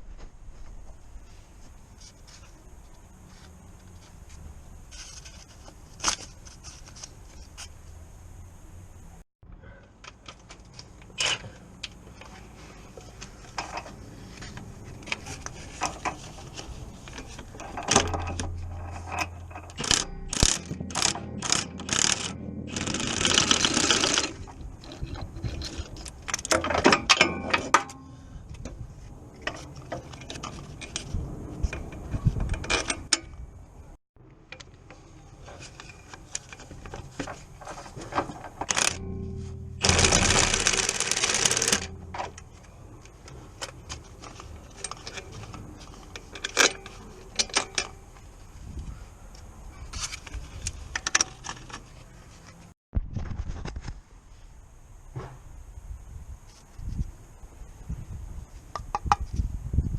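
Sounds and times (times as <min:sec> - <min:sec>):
metallic clicks and knocks: 0:13.0 - 0:28.8, 0:35.6 - 0:48.3
ratchet clicking: 0:17.8 - 0:26.6, 0:38.6 - 0:42.4.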